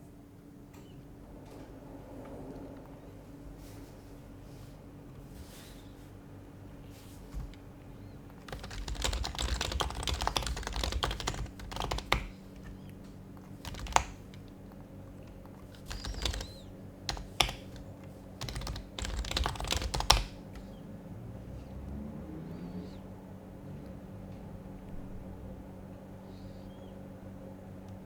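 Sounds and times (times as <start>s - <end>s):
soft muted keyboard typing: 6.9s - 20.8s.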